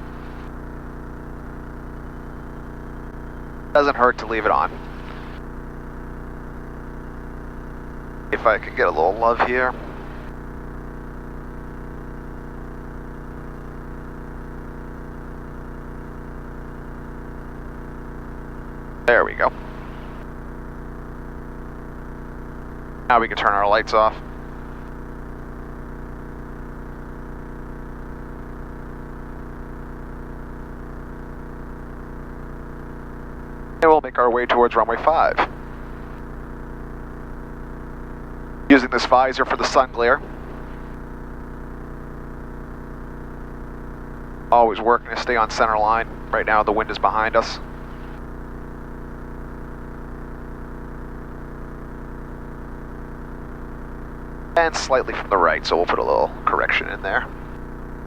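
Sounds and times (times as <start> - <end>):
airplane engine and propeller drone: 2.4 - 5.4, 8.4 - 10.3, 23.1 - 24.8, 38.7 - 41.0, 44.6 - 48.2, 54.6 - 57.6.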